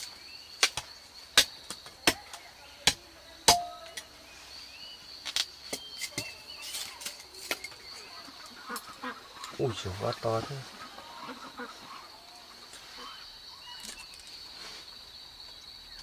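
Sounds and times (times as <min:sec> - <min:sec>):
blade chopping into wood: 0:03.5 - 0:03.7.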